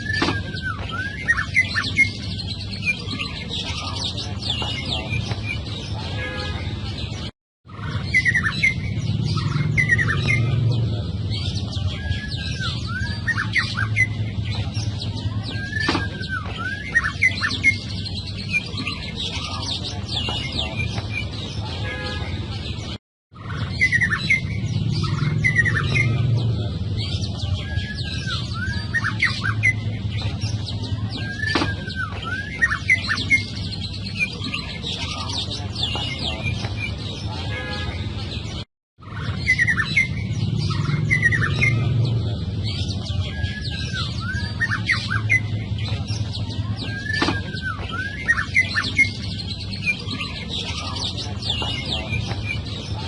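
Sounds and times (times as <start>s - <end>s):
bird singing whistled phrases: 0.0s - 3.9s, 11.9s - 14.2s, 15.4s - 19.6s, 27.4s - 30.3s, 46.7s - 52.6s.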